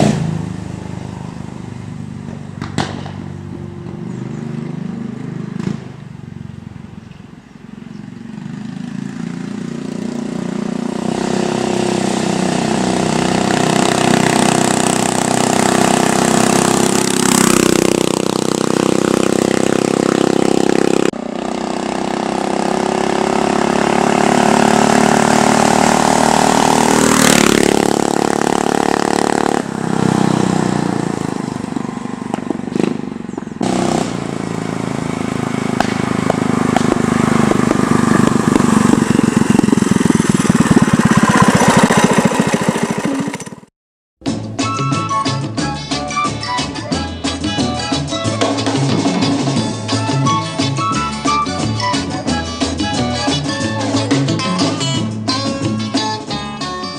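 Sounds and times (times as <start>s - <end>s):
minibike engine running: 8.4s - 43.7s.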